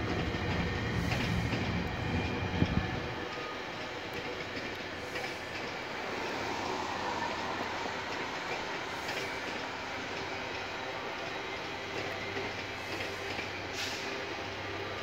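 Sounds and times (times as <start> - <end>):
train coaches rolling: 0.0 - 15.0.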